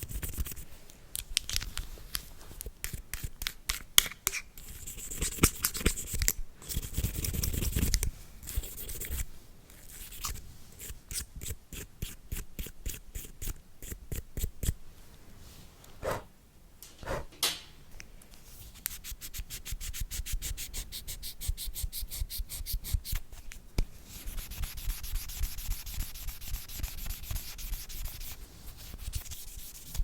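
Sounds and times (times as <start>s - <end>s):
brush and scraping strokes: 24.0s - 30.0s.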